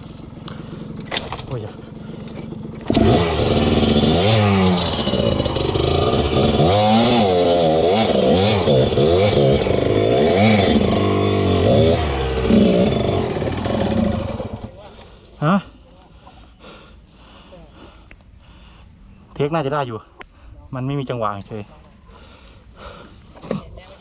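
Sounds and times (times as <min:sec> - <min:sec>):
dirt bike engine revving: 0:00.0 - 0:14.9.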